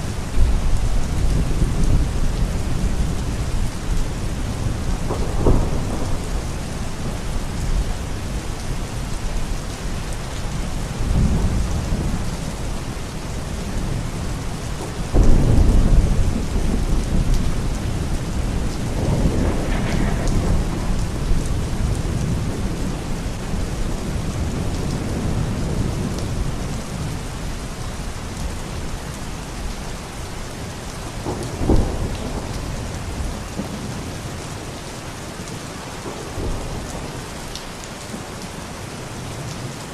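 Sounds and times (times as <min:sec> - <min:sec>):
heavy rain: 0:00.0 - 0:39.9
thunder rumbling: 0:00.1 - 0:27.4, 0:31.0 - 0:34.4.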